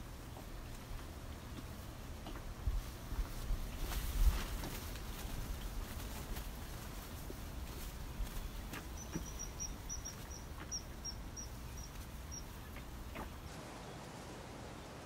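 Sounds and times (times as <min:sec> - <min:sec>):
low outdoor background noise: 0:00.0 - 0:15.0
small bird chirping: 0:08.2 - 0:13.5.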